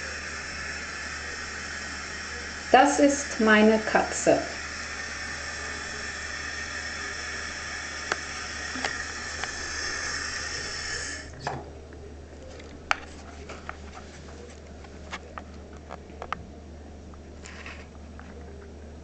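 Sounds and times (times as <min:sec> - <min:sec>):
steady hiss: 0:00.0 - 0:12.2.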